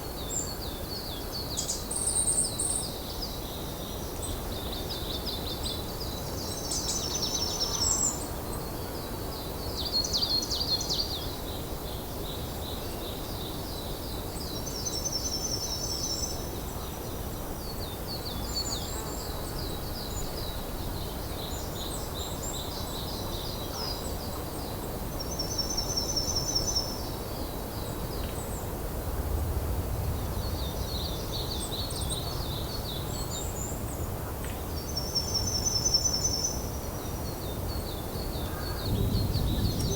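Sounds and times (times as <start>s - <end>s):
songbirds singing: 30.0s - 39.9s.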